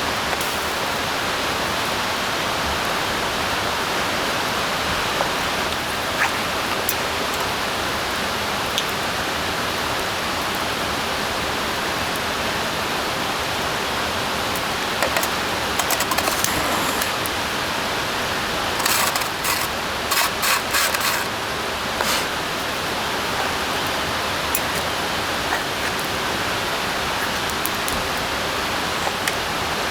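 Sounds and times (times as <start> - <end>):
rain hissing on forest: 0.0 - 29.9.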